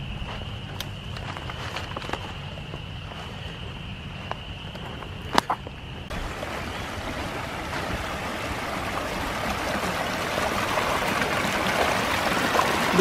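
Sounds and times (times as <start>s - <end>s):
stream rushing and splashing: 6.1s - 13.0s.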